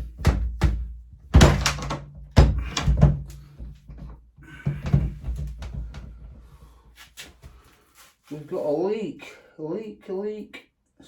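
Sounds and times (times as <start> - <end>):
knocks and thunks: 0.0 - 6.3.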